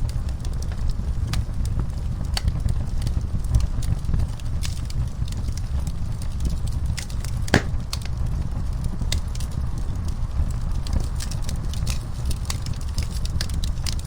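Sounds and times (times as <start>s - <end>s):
wood fire crackling: 6.9s - 8.0s.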